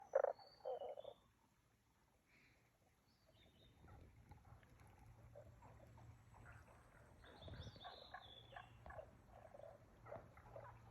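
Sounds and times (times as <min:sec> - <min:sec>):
frogs croaking: 0:00.0 - 0:01.3.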